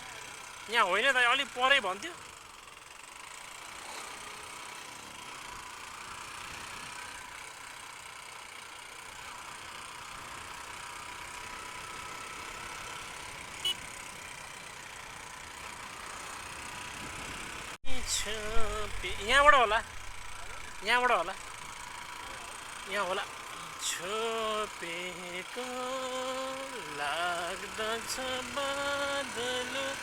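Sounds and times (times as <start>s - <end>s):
motorcycle engine: 0.0s - 30.0s
wind and road noise: 12.9s - 22.8s.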